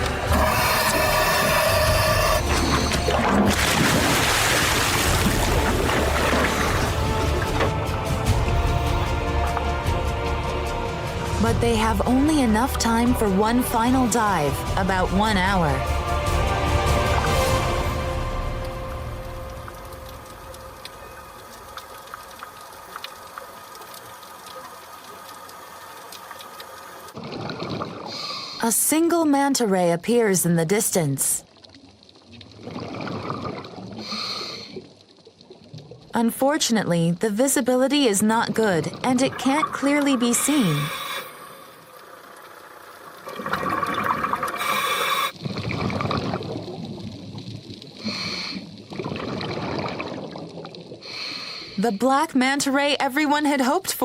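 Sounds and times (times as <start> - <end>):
exhaled bubbles gurgling: 0.0 - 7.7, 27.1 - 28.5, 31.6 - 36.2, 38.2 - 51.2
low rushing of water: 0.0 - 28.5, 37.9 - 52.1
underwater hiss: 34.0 - 34.8, 40.4 - 41.9, 44.3 - 45.4, 48.0 - 48.8, 51.0 - 51.8.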